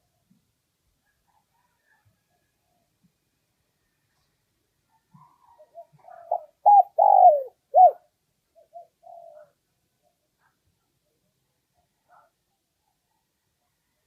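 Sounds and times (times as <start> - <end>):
dove cooing: 5.1 - 9.6.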